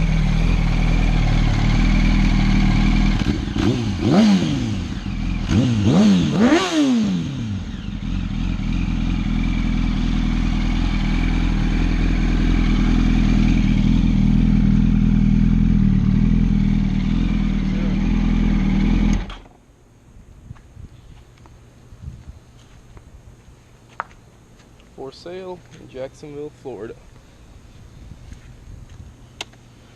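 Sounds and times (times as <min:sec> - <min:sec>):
motorcycle engine idling: 0:00.0 - 0:05.9, 0:07.3 - 0:19.3.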